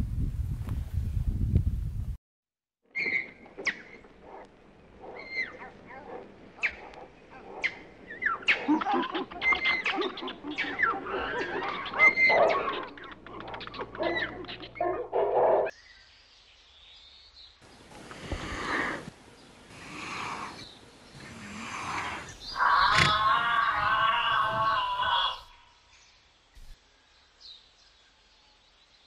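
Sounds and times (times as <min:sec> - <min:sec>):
animal calls and chirps: 0:02.9 - 0:16.1, 0:19.7 - 0:26.0
faint hiss: 0:15.8 - 0:22.6.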